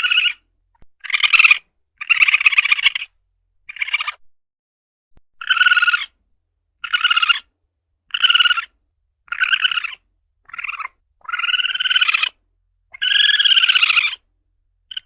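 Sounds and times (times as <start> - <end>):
civet buzzy rasping calls: 0.0 - 0.4, 1.0 - 3.1, 3.7 - 4.2, 5.4 - 6.1, 6.8 - 7.5, 8.1 - 8.7, 9.3 - 14.2.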